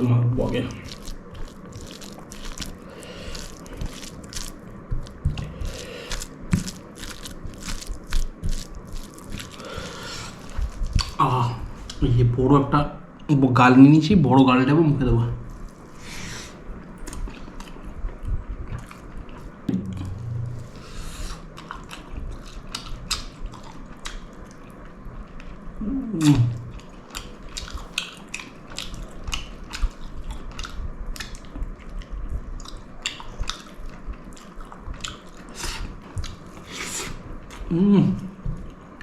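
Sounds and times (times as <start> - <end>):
wet chewing close-up: 0.5 - 11.2
person humming: 25.8 - 26.6, 37.7 - 38.4.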